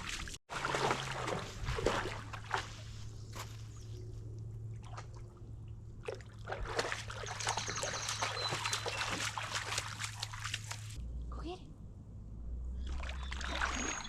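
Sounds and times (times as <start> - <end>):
water splashing and trickling: 0.0 - 11.0, 12.8 - 14.0.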